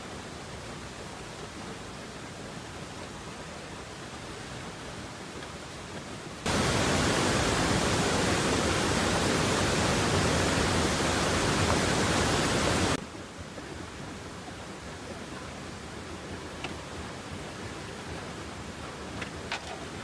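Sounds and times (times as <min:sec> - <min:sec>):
faint steady hiss: 0:00.0 - 0:20.0
loud even hiss: 0:06.5 - 0:13.0.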